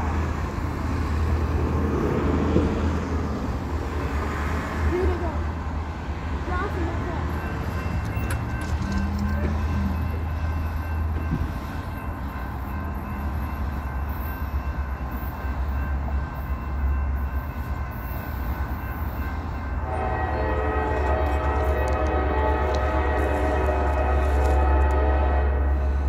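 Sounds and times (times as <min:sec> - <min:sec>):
train locomotive rumbling: 0:00.0 - 0:26.0
multi-note train horn: 0:19.8 - 0:26.0.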